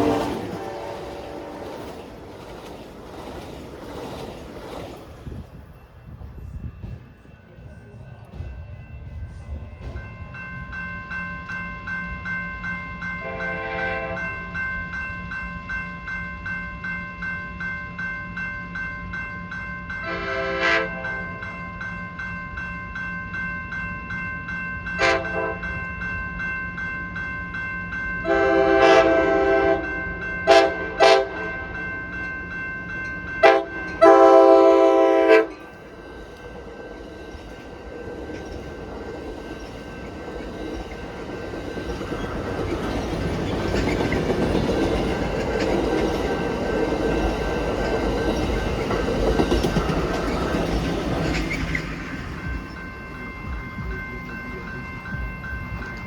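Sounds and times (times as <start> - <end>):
locomotive air horn blasts: 0.0 - 1.8, 13.2 - 14.3, 20.0 - 21.2, 25.0 - 25.6, 28.3 - 29.9, 30.5 - 31.4, 33.4 - 35.6
train rumble and wheel clatter: 0.0 - 56.0
bell ringing: 9.8 - 56.0.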